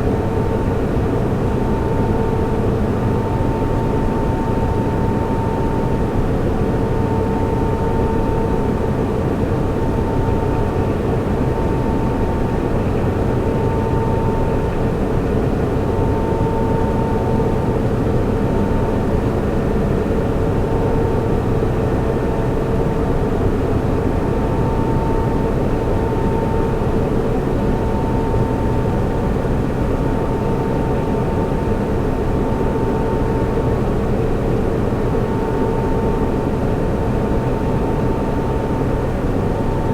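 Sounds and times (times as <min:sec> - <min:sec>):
cooling fans rushing hum: 0:00.0 - 0:39.9.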